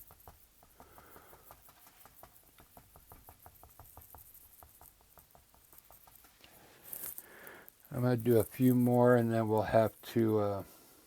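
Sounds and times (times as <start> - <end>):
brush tapping on canvas: 0.0 - 6.7.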